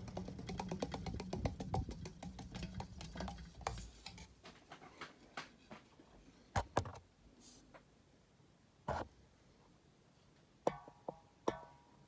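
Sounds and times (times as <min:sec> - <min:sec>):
ceiling fan motor hum: 0:00.0 - 0:04.6.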